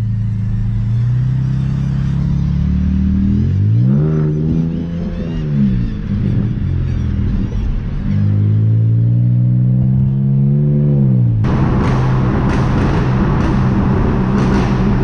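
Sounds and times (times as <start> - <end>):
car engine revving: 0.0 - 15.0
loud rushing noise: 11.4 - 15.0.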